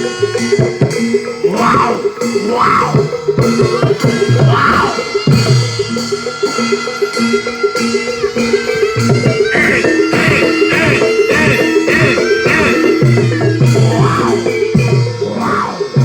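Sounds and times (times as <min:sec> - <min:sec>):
drums and metal percussion: 0:00.0 - 0:16.0.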